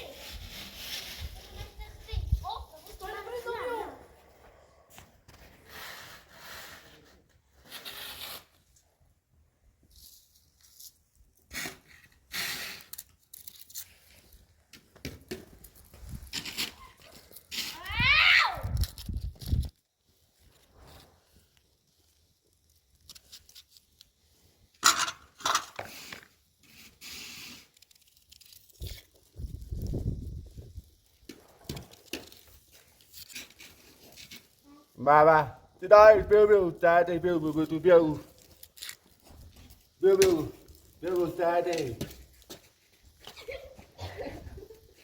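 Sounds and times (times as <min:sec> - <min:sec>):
faint rustling and scraping: 0:00.0 - 0:08.6, 0:18.7 - 0:35.0, 0:36.3 - 0:45.0
objects clattering: 0:24.8 - 0:26.3.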